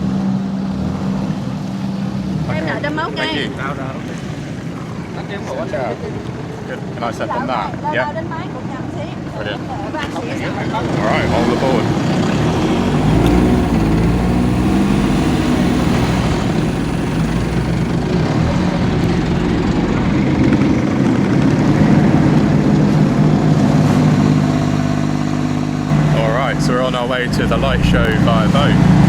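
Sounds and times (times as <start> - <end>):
boat engine running: 9.8 - 29.0.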